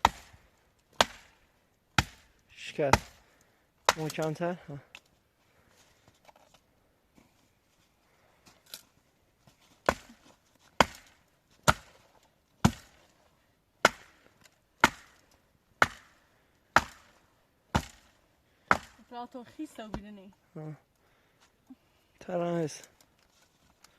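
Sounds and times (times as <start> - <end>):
chopping wood: 0.0 - 1.4, 2.0 - 4.4, 9.8 - 13.1, 13.8 - 15.2, 15.8 - 19.0.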